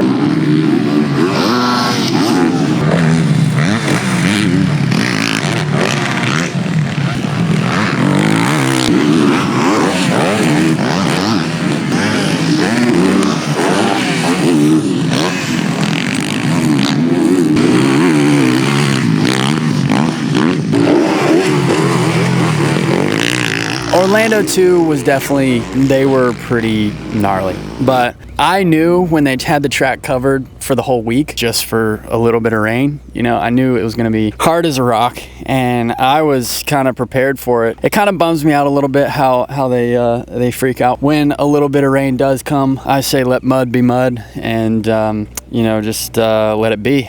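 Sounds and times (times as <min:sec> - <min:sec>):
motocross bike engine revving: 0:00.0 - 0:36.8.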